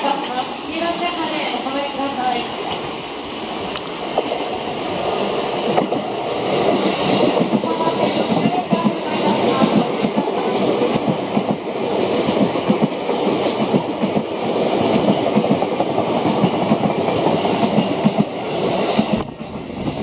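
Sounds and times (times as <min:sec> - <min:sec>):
train wheels clacking on rail joints: 0:04.1 - 0:19.6.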